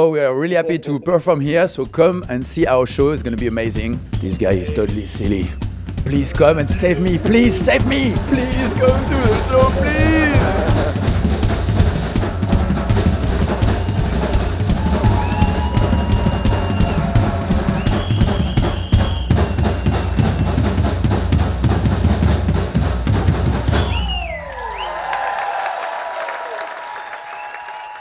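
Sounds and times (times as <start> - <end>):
drum kit played fast: 1.0 - 24.4
held high tones: 6.1 - 11.0.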